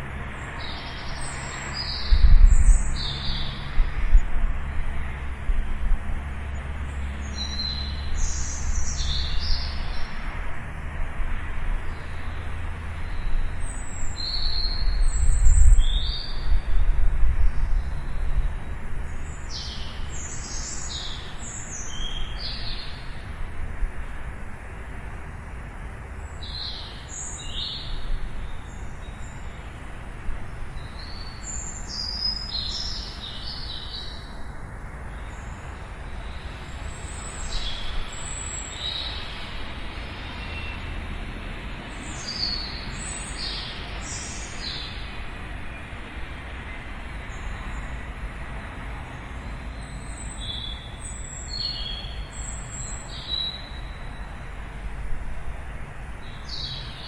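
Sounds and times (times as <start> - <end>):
small birds chirping: 41.9 - 45.2, 49.7 - 54.3.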